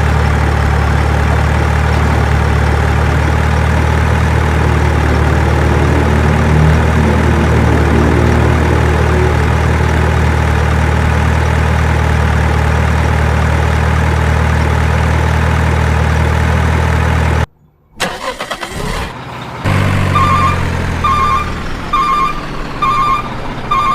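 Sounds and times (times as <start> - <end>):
heavy diesel machinery running: 0.0 - 23.9
reversing alarm beeping: 20.0 - 23.9.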